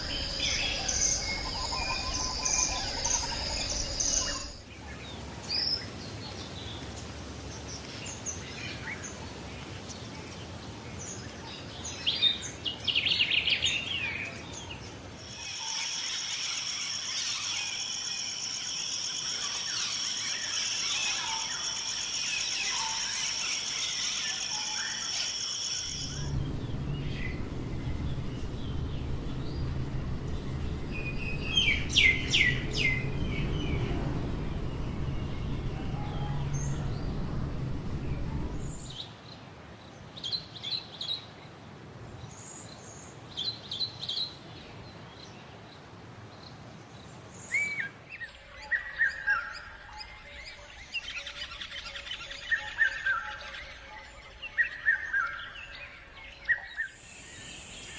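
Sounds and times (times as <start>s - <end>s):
pulsing high insect trill: 0.0s - 4.6s, 15.2s - 38.9s, 56.9s - 57.9s
downward-sweeping bird calls: 0.0s - 5.8s, 14.7s - 39.0s
birds calling and chirping: 0.0s - 7.0s, 7.6s - 39.0s
low steady hum: 25.9s - 39.0s.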